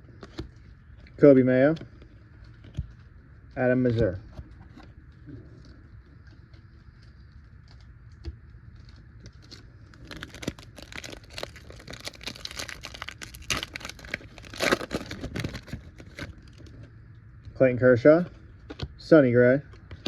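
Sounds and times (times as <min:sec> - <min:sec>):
foil wrapper tearing and crinkling: 0:08.8 - 0:16.8.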